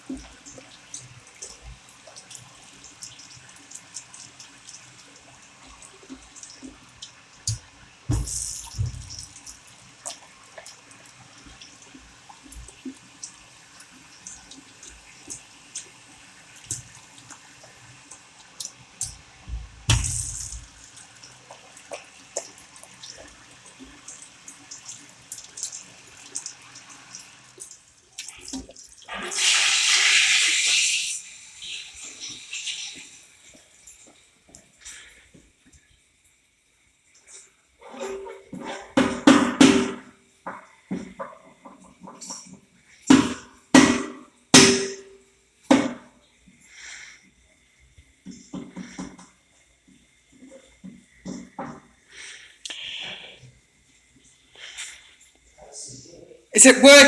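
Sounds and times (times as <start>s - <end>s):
tap water running into sink: 0.0s - 34.7s
water drips and splashes: 0.0s - 35.9s, 40.4s - 43.6s.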